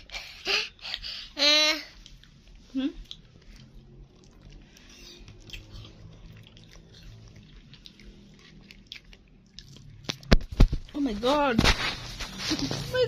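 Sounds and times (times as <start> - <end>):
faint background hum: 0.0 - 13.0
toddler eating mouth sounds: 1.7 - 10.0.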